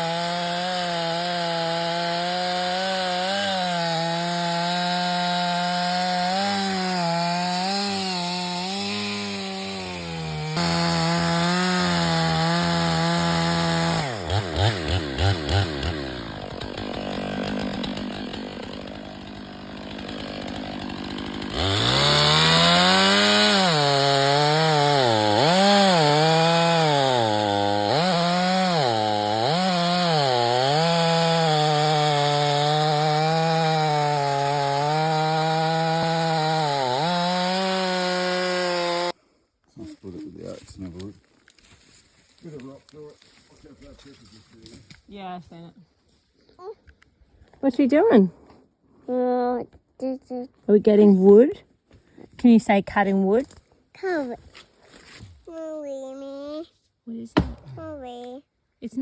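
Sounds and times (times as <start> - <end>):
chainsaw cutting wood: 0.0 - 39.2, 57.4 - 58.3.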